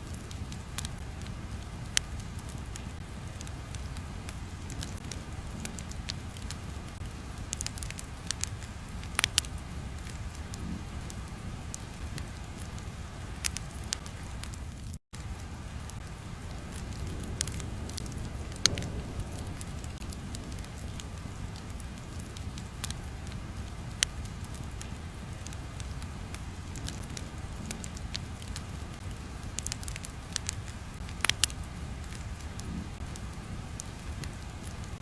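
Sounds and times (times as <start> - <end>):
fire crackles and pops: 0.0 - 35.0
low rumble: 0.0 - 35.0.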